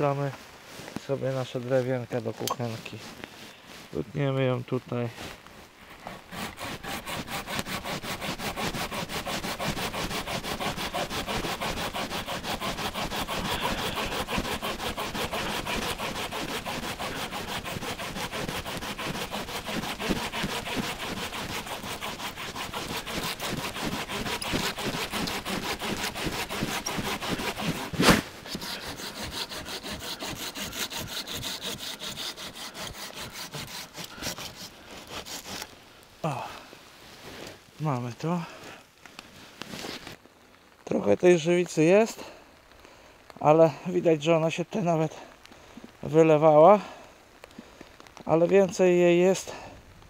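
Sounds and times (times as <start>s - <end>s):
wood cracking: 5.4s - 36.7s
hand saw cutting wood: 5.9s - 35.8s.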